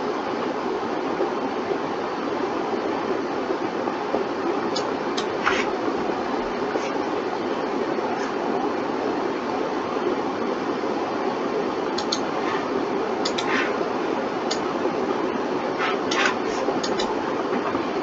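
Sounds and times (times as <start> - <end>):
steady rushing noise: 2.9 - 18.0
short clicks: 12.0 - 12.2, 13.2 - 13.6, 16.2 - 17.1.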